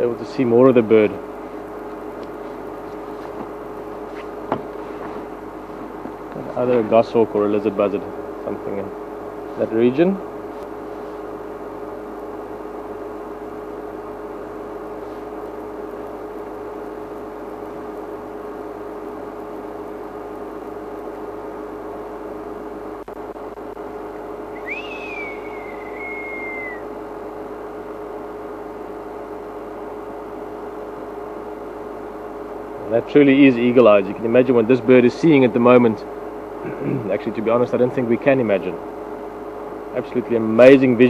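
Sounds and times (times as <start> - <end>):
steady hum: 0.0 - 41.0
whistled bird call: 24.5 - 26.9.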